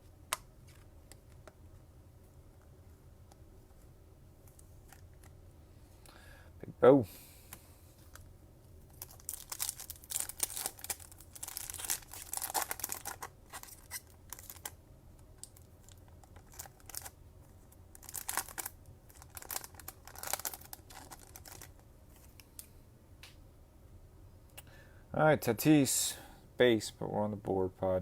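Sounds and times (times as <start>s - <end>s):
foil wrapper tearing and crinkling: 8.9s - 14.8s, 15.5s - 17.2s, 17.9s - 21.7s.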